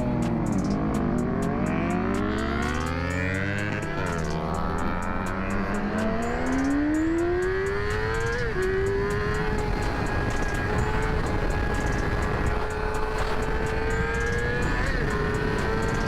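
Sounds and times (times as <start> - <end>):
motorcycle engine accelerating: 0.0 - 16.0
wind rushing over microphone: 5.7 - 16.0.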